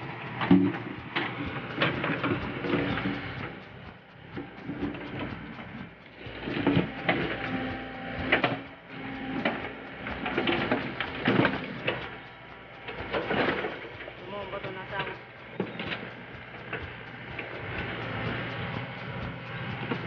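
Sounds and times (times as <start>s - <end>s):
machine hum: 0.0s - 20.0s
machine whine: 0.0s - 20.0s
backhoe clanks and knocks: 0.1s - 3.6s, 4.4s - 12.2s.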